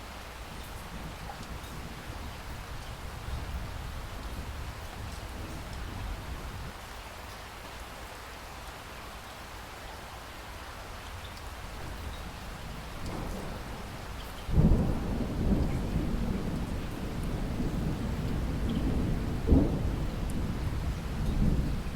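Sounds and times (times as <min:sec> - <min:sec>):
steady rain falling: 0:00.0 - 0:21.9
thunder clap and rumble: 0:11.8 - 0:21.9.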